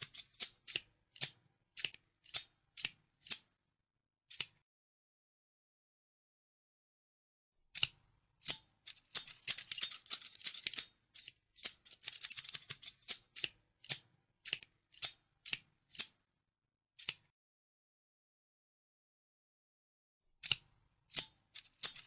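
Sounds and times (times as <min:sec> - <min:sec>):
scissors snipping: 0:00.0 - 0:03.5, 0:04.3 - 0:04.6, 0:07.7 - 0:16.2, 0:17.0 - 0:17.3, 0:20.4 - 0:22.0.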